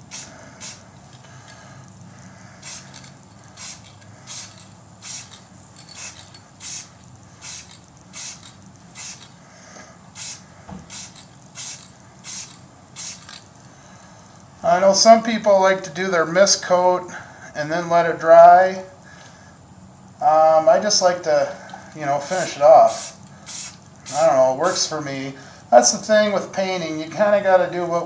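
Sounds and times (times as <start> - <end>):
aerosol paint can spraying: 0.0 - 1.2, 2.6 - 9.4, 10.1 - 13.5, 22.2 - 24.8.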